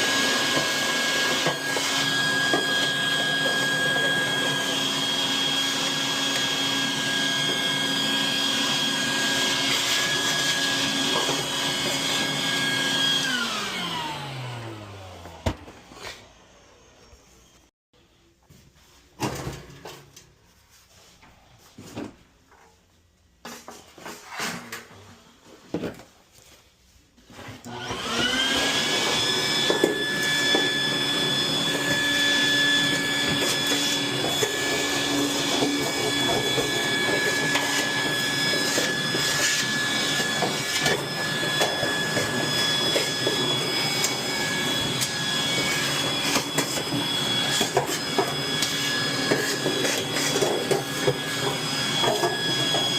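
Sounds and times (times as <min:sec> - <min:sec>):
electric motor whining: 0:27.7 - 0:52.9.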